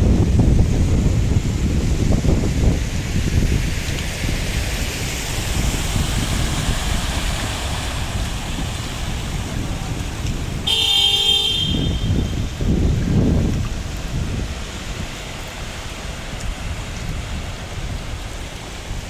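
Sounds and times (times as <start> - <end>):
steady rain: 0.0 - 19.0
wind rumbling on microphone: 0.0 - 19.0
car horn honk: 10.7 - 12.4.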